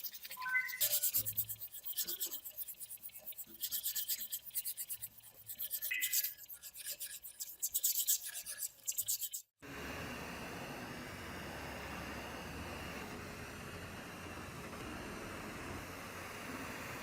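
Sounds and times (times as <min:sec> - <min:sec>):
rasping strokes on metal: 0:00.0 - 0:09.6.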